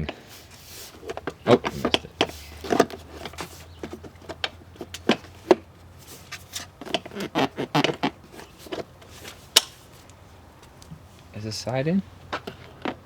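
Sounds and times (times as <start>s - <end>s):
plastic bodywork clicking and knocking: 1.0s - 9.7s.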